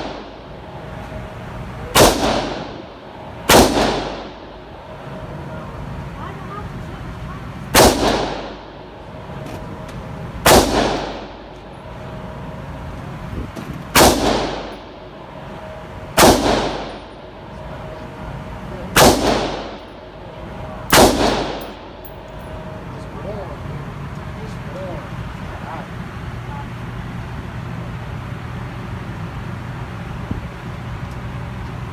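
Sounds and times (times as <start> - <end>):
echoing gunshots: 0.0 - 0.6, 1.9 - 4.9, 7.7 - 9.0, 10.4 - 11.6, 13.9 - 15.2, 16.2 - 17.3, 18.9 - 20.2, 20.9 - 22.1.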